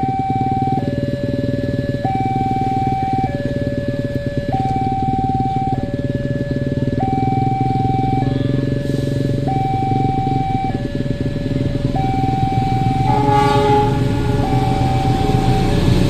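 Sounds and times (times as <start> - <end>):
two-tone warning signal: 0.0 - 16.0
passenger train rumbling past: 11.3 - 16.0
horn-like tone: 12.4 - 16.0.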